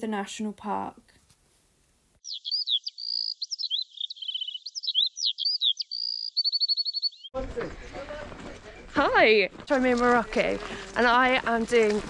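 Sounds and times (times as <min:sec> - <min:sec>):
bird whistling song: 0:02.2 - 0:07.3.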